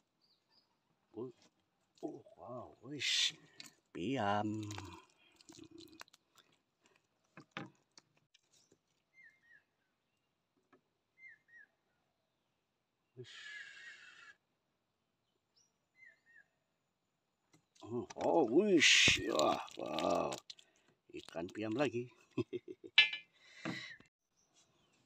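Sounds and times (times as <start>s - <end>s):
small bird chirping: 11.2s - 11.7s, 15.5s - 16.6s.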